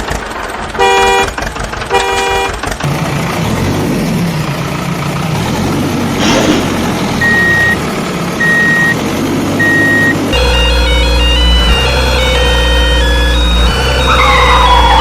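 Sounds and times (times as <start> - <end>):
truck engine running: 0.0 - 15.0
reversing alarm beeping: 7.2 - 7.8, 8.4 - 9.0, 9.6 - 15.0.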